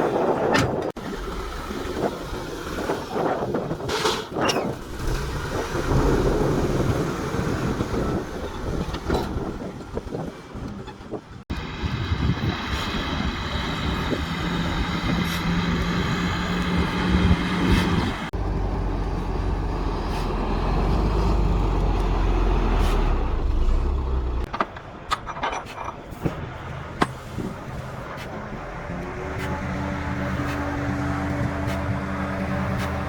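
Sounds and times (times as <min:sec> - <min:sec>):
heavy machinery diesel engines: 0:00.0 - 0:33.0
sharp clanks and knocks: 0:24.4 - 0:27.2.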